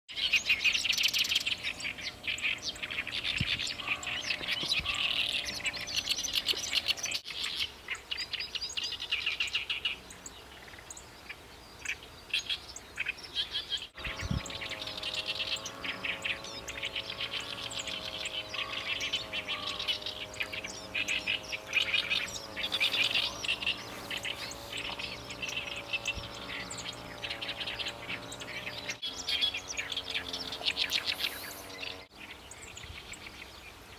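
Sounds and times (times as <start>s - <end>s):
bird singing high chirping notes: 0.1s - 33.9s
other bird calls: 0.1s - 33.9s
low wavering hum: 14.0s - 33.4s.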